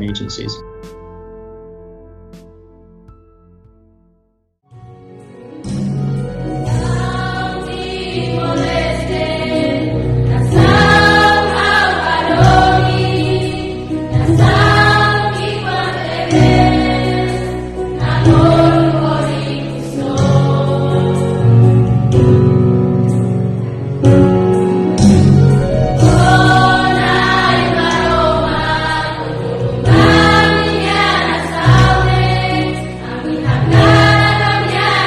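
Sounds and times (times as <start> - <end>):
choir singing a slow song: 6.4 - 22.3, 26.0 - 35.0.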